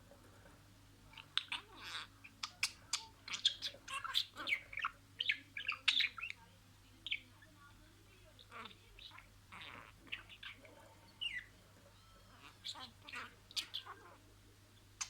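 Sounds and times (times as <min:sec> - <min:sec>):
budgerigar chirping and warbling: 0:01.1 - 0:06.4, 0:07.0 - 0:07.4, 0:08.4 - 0:10.6, 0:11.2 - 0:14.2.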